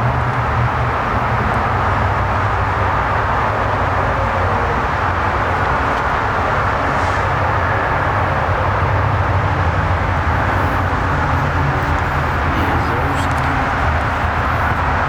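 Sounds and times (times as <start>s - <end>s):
vehicle engine running: 9.9s - 15.0s.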